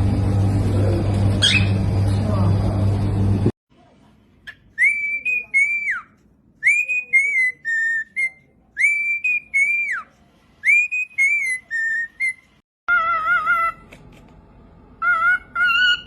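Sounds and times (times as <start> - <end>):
parrot whistling a tune: 1.4 - 1.8, 4.8 - 13.8, 15.0 - 16.0.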